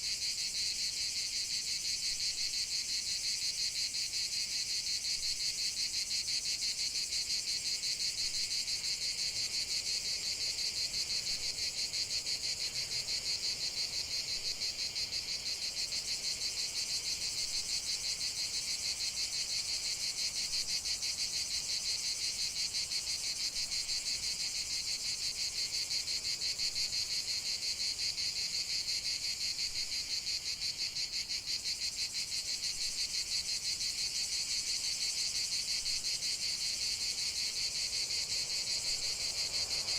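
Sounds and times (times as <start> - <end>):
crickets trilling: 0.2 - 39.9.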